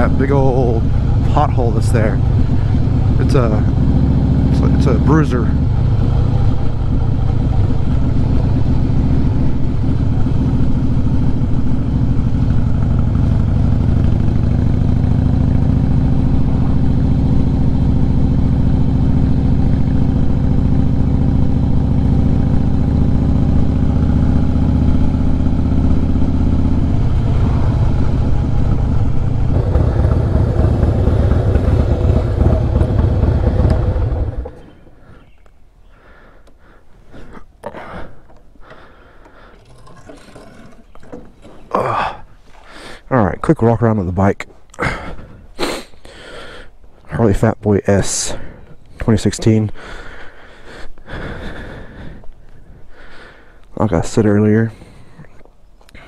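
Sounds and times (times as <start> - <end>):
motorcycle engine running: 0.0 - 35.3.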